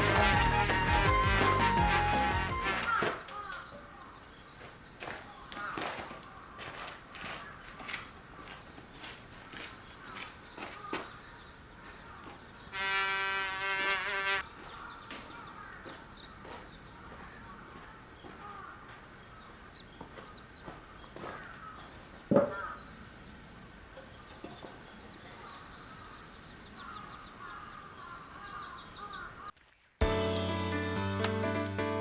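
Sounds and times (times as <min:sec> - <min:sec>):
birds chirping and calling: 0:09.8 - 0:12.8, 0:14.1 - 0:29.5.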